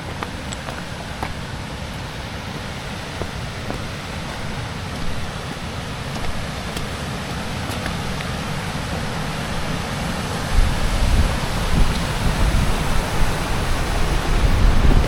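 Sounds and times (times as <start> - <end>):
blizzard wind on microphone: 2.9 - 15.0.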